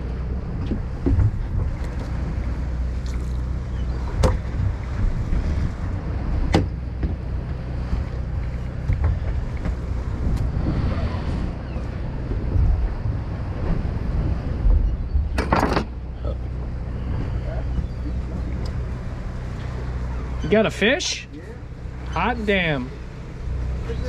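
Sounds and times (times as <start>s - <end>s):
boat engine humming: 0.0s - 24.0s
wind on microphone: 3.6s - 16.0s.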